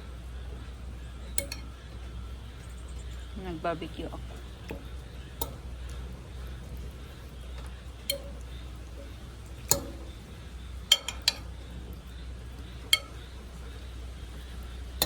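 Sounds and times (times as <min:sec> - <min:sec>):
steady low rumble: 0:00.0 - 0:15.0
metal utensils clinking on grill: 0:01.3 - 0:01.9, 0:07.5 - 0:11.6, 0:12.8 - 0:13.4.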